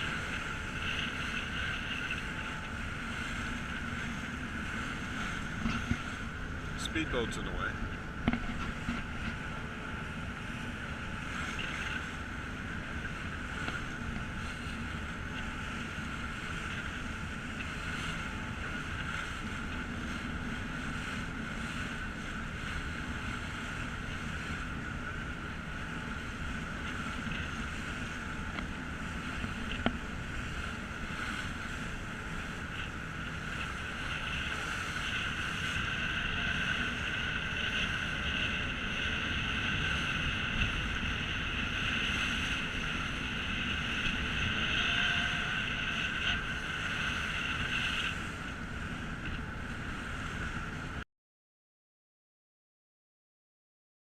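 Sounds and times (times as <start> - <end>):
ferry engine drone: 0.0 - 51.0
wind and water rushing: 0.0 - 51.0.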